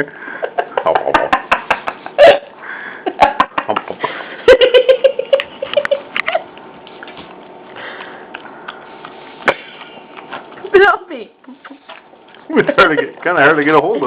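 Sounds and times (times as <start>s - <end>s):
dogs licking wet mouth clicks: 5.4s - 10.7s.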